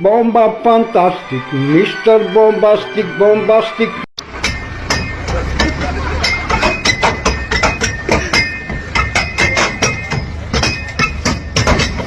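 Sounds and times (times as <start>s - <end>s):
rapid sharp knocks: 4.4s - 12.0s.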